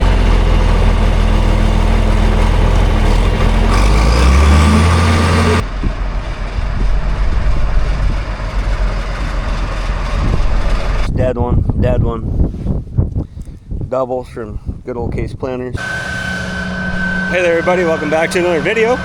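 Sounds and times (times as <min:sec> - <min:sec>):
vehicle engine running: 0:00.0 - 0:11.1, 0:15.8 - 0:19.0
wind noise: 0:00.0 - 0:19.0
quiet rumble: 0:05.1 - 0:15.8.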